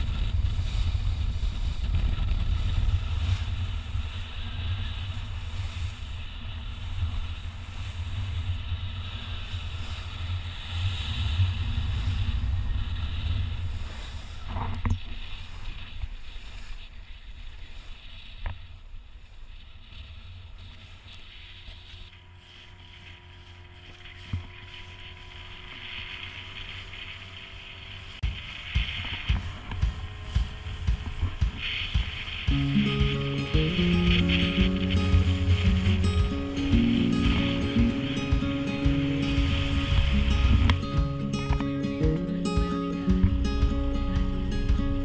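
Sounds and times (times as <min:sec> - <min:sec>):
wind rushing over microphone: 0:00.0 - 0:21.1, 0:28.0 - 0:45.0
water noise: 0:21.9 - 0:45.0.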